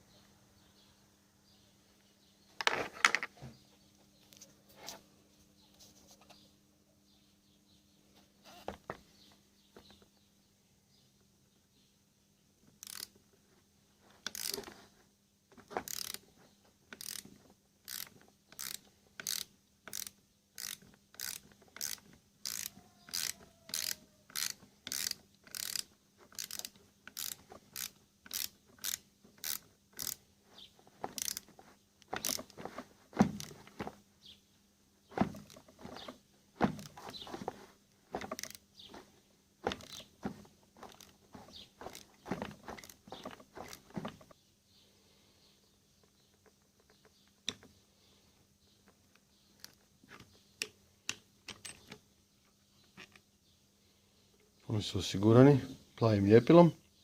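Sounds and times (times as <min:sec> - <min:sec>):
ratchet wrench clicking: 0:12.8 - 0:13.2, 0:14.2 - 0:14.7, 0:15.8 - 0:16.2, 0:16.9 - 0:17.3, 0:17.9 - 0:30.2, 0:31.1 - 0:32.5, 0:41.8 - 0:42.1
metal parts knocking and clacking: 0:51.1 - 0:52.0.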